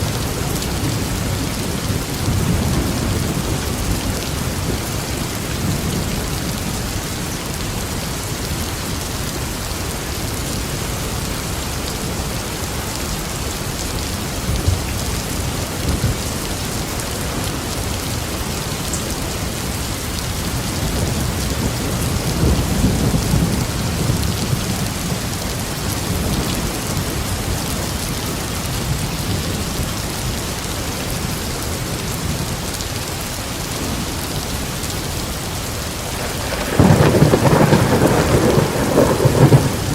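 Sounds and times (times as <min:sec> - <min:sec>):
steady rain falling: 0:00.0 - 0:39.9
low thunder rumbling: 0:20.4 - 0:30.4, 0:36.1 - 0:39.9.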